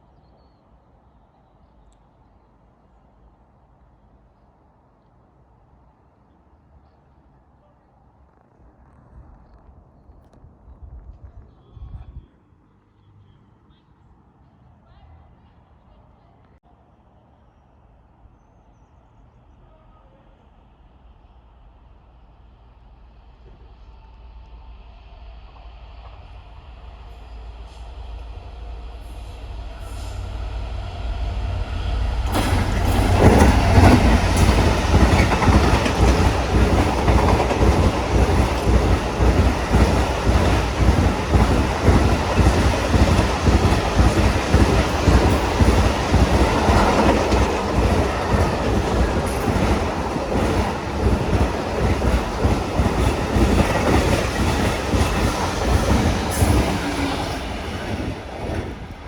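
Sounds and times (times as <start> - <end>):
train wheels rumbling on rails: 23.0 - 59.0.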